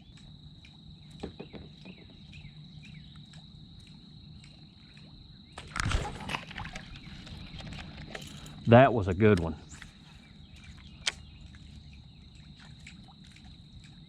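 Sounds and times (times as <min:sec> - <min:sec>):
bird chirps: 0:00.0 - 0:05.6, 0:09.4 - 0:12.6
high insect drone: 0:00.0 - 0:14.0
splash in water: 0:05.6 - 0:07.0.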